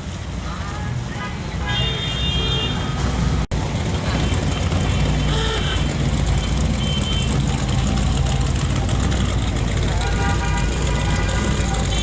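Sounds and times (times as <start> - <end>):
low engine drone: 3.5 - 12.0.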